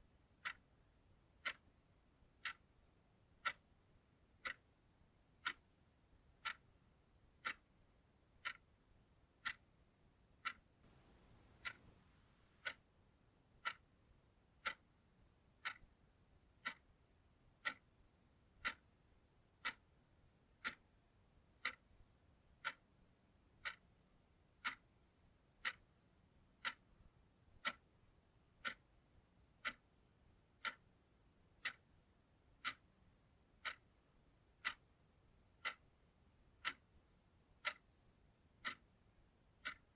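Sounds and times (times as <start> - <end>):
clock ticking: 0.2 - 39.9.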